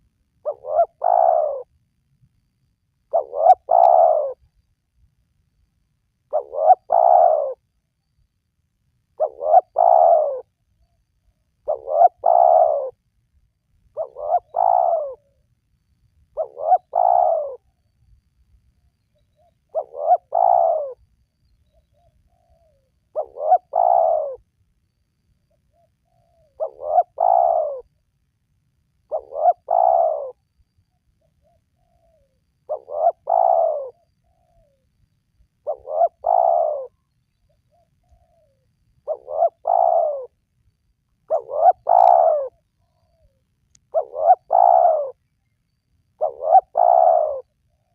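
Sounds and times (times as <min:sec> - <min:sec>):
dove cooing: 0:00.0 - 0:01.7, 0:03.1 - 0:04.4, 0:06.3 - 0:07.6, 0:09.2 - 0:10.5, 0:11.6 - 0:13.0, 0:13.9 - 0:15.4, 0:16.4 - 0:17.7, 0:19.3 - 0:21.0, 0:21.7 - 0:24.5, 0:25.7 - 0:27.9, 0:29.1 - 0:30.4, 0:31.2 - 0:34.8, 0:35.6 - 0:40.4, 0:41.2 - 0:45.3, 0:46.2 - 0:47.9.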